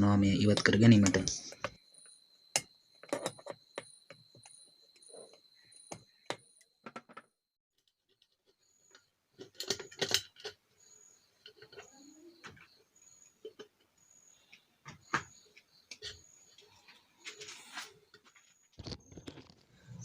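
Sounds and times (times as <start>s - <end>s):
metal parts and tools clinking: 9.4s - 10.6s.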